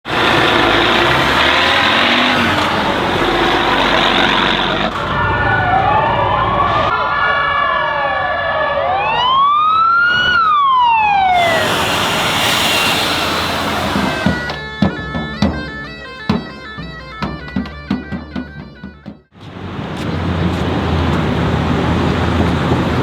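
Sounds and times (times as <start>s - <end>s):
vehicle engine: 0.0s - 6.9s, 11.1s - 14.6s, 19.4s - 23.0s
siren wailing: 0.1s - 14.6s.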